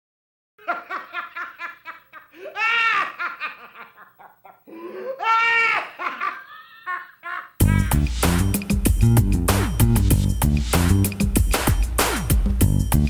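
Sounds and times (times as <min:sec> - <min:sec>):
person laughing heartily: 0:00.6 - 0:08.3.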